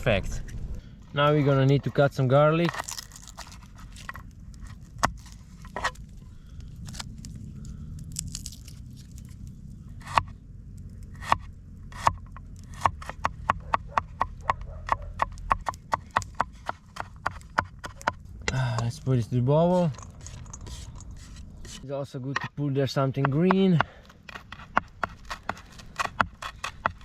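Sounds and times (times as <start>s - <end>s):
knife chopping garlic: 11.1s - 18.9s, 23.2s - 27.0s.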